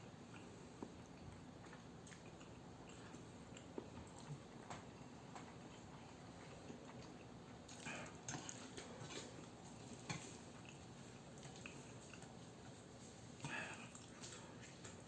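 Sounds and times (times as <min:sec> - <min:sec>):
person chewing noodles: 0:00.0 - 0:15.0.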